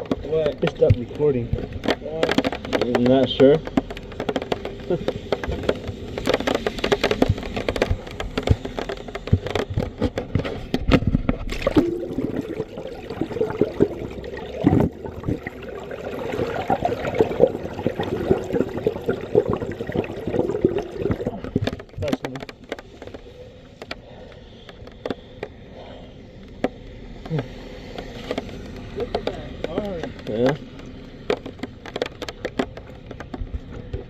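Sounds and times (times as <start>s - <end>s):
knocks and scrapes: 0.0s - 25.6s, 26.6s - 34.0s
feet wading through water: 11.4s - 21.8s.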